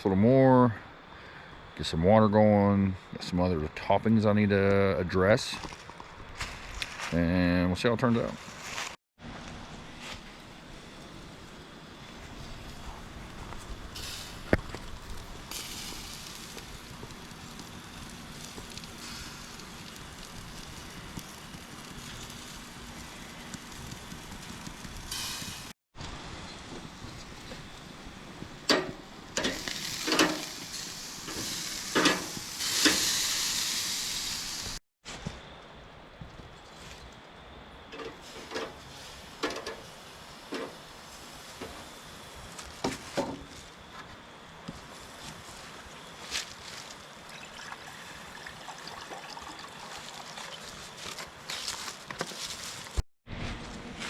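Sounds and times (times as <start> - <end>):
meat sizzling on a grill: 10.7 - 25.7, 26.4 - 34.8, 38.0 - 43.6
handling clicks and knocks: 28.7 - 30.5
cooking utensils clinking: 28.7 - 30.6, 31.3 - 33.0.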